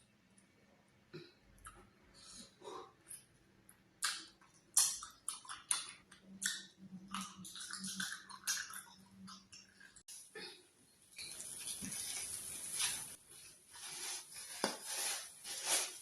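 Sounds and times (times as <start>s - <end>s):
wet mouth eating sounds: 4.0s - 10.0s.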